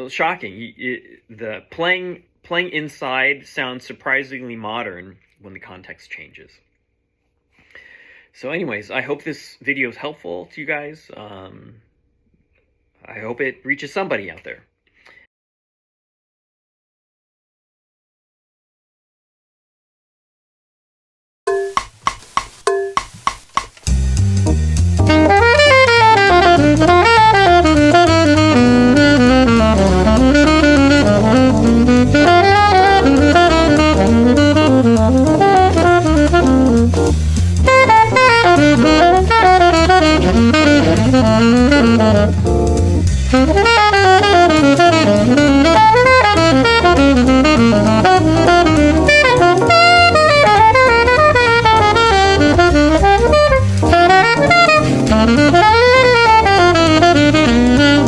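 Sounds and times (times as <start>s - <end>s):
backing track with bass and drums: 21.5s - 58.0s
jazz saxophone improvising: 21.5s - 58.0s.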